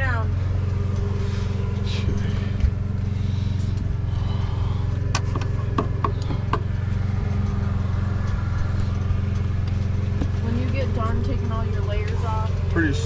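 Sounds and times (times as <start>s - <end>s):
low machine hum: 0.0s - 13.0s
light knocks and clicks: 5.0s - 10.4s.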